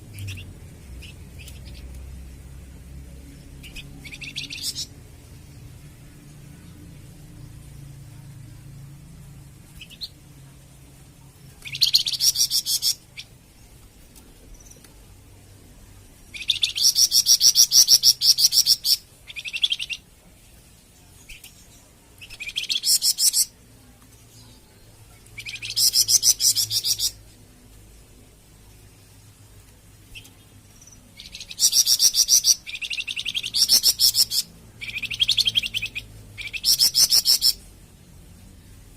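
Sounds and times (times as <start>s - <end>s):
songbird trilling: 25.4s - 27.2s, 31.2s - 37.6s.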